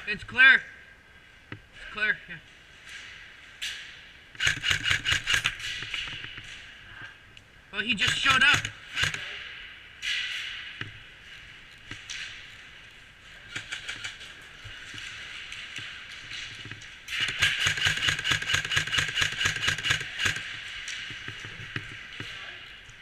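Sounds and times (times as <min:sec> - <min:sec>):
airsoft guns firing: 0:04.4 - 0:06.2, 0:07.9 - 0:09.4, 0:13.4 - 0:14.4, 0:17.1 - 0:21.7.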